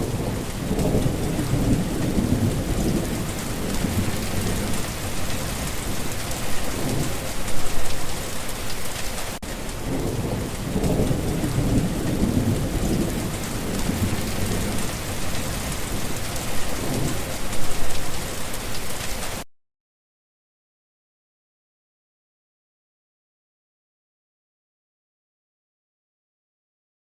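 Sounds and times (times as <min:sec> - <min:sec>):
low roll of thunder: 0:00.0 - 0:08.4, 0:09.5 - 0:18.4
rain falling: 0:00.0 - 0:19.5.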